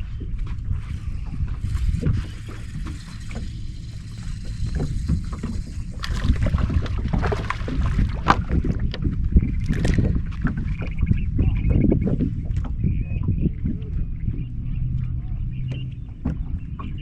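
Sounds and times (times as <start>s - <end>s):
wind and water rumble: 0.0s - 17.0s
water splashes: 0.9s - 17.0s
knocks on boat: 5.1s - 9.1s, 15.7s - 17.0s.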